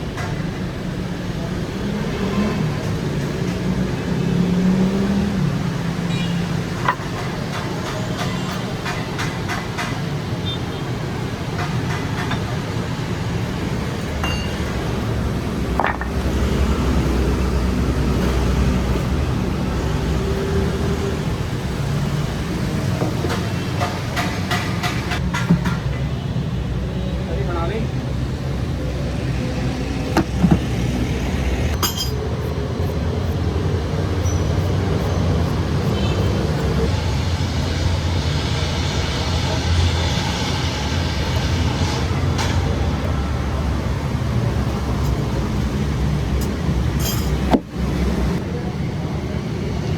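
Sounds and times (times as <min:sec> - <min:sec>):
sharp clicks and knocks: 0:06.8 - 0:10.2, 0:23.0 - 0:26.0
metallic clink: 0:14.2 - 0:14.8, 0:31.8 - 0:32.3, 0:47.0 - 0:47.5
machinery hum: 0:34.8 - 0:47.0.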